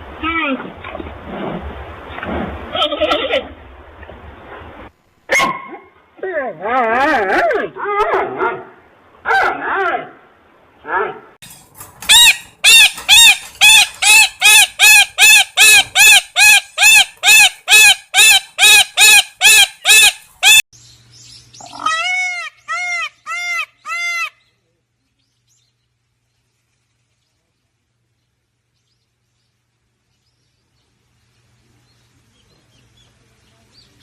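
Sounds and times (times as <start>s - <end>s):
bird calling: 12.0s - 20.6s, 21.2s - 24.6s
lower-pitched bird calls: 12.0s - 20.6s, 21.2s - 24.6s.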